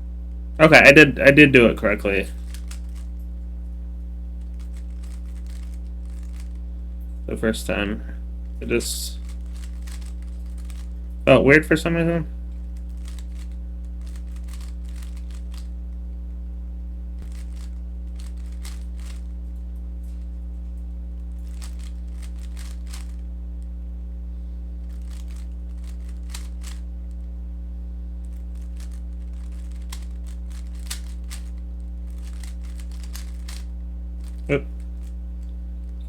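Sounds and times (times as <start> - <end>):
low electrical hum: 0.0 - 36.0
plastic puzzle cube clicking: 2.5 - 3.1, 4.6 - 6.5, 9.2 - 10.9, 13.0 - 15.7, 17.3 - 19.2, 21.4 - 23.2, 25.0 - 26.8, 28.3 - 34.4.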